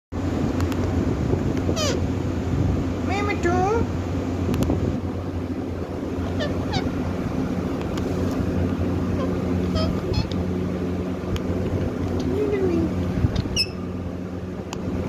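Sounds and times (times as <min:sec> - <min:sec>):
low background rumble: 0:00.2 - 0:15.0
parrot chirping: 0:01.8 - 0:02.0, 0:06.2 - 0:07.0, 0:09.1 - 0:10.4, 0:13.5 - 0:13.9.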